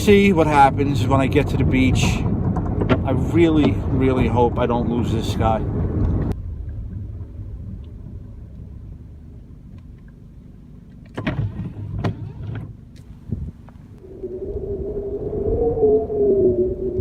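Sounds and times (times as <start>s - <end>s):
car cabin rumble: 0.0s - 14.0s
sharp knocks and clicks: 2.2s - 3.8s.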